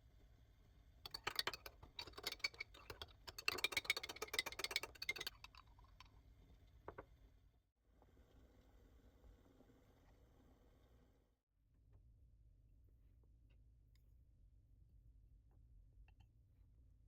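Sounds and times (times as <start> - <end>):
kitchen utensils clicking and tapping: 1.1 - 6.1.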